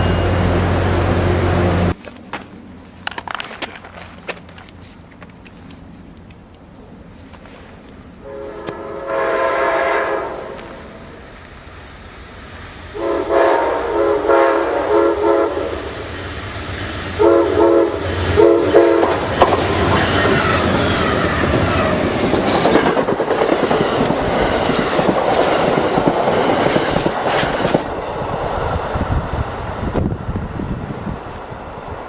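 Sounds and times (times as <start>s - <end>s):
wheels clacking over rail joints: 1.8s - 6.7s, 18.0s - 29.2s
train air horn blasts: 8.2s - 10.8s, 12.9s - 15.9s, 17.1s - 19.3s.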